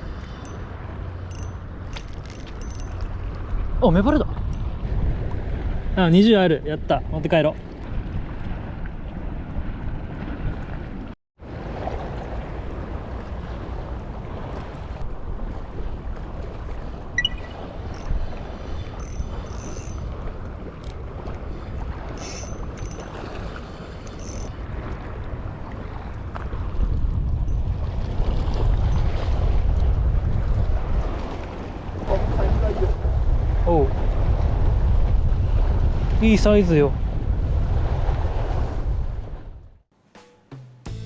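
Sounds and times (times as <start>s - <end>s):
wind noise on microphone: 0.0s - 6.0s, 17.4s - 39.8s
faint clicks and rattles: 1.3s - 3.1s, 19.0s - 20.1s, 22.2s - 23.2s, 24.1s - 24.5s.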